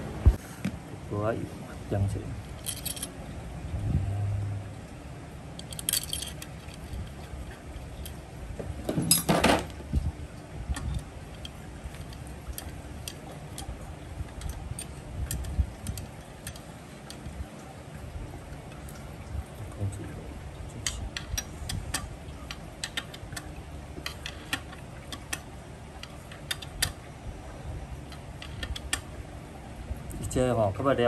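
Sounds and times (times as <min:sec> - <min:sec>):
metallic rattle: 0:02.5 - 0:03.2, 0:05.6 - 0:08.2, 0:08.8 - 0:09.8
metal tools clinking: 0:02.6 - 0:03.1, 0:05.6 - 0:07.1, 0:08.9 - 0:09.7.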